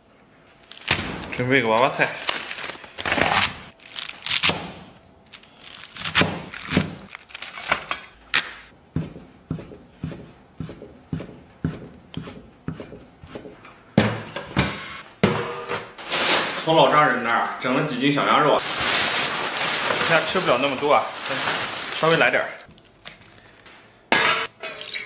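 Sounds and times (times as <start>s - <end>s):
knife chopping cabbage on board: 9.0s - 14.3s.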